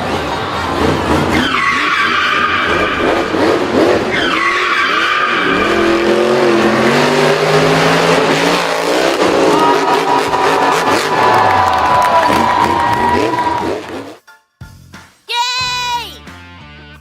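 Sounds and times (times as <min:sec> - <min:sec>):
monster truck engines revving: 0:00.0 - 0:14.2
tyres skidding: 0:00.0 - 0:14.2.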